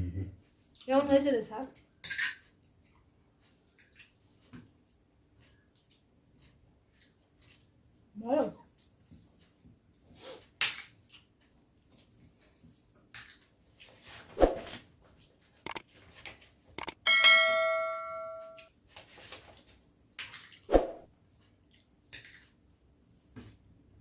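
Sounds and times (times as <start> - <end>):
tableware clattering: 2.0 - 2.4
metal bowl struck ringing: 17.1 - 18.6.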